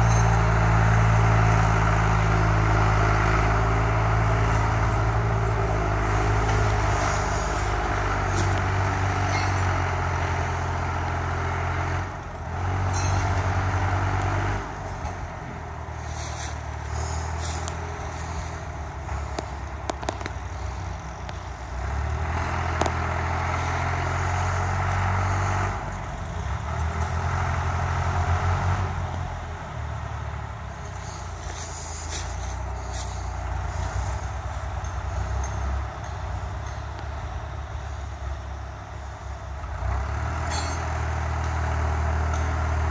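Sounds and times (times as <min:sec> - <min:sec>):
vehicle engine running: 0:00.0 - 0:42.9
clicks and crackles: 0:19.1 - 0:21.5.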